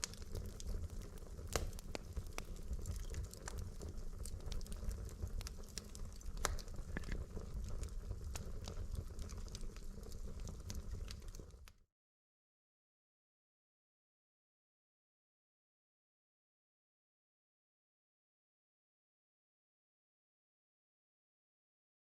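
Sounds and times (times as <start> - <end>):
fire crackling and popping: 0.0 - 11.8
fire rumbling: 0.0 - 11.8.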